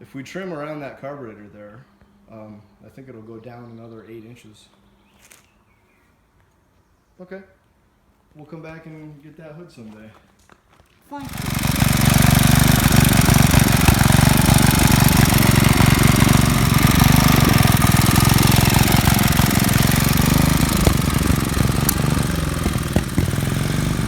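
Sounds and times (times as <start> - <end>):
small gasoline engine chugging: 11.2 - 24.0.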